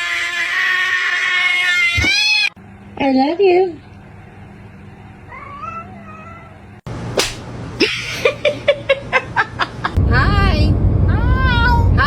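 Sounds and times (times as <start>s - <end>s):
cat meowing faintly: 5.3s - 6.6s.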